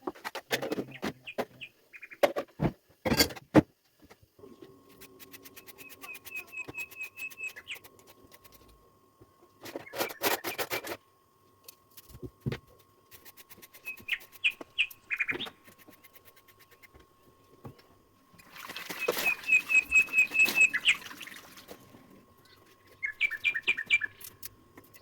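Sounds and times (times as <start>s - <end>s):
small bird chirping: 5.6s - 8.6s, 13.6s - 16.8s, 18.9s - 21.4s, 22.4s - 25.0s.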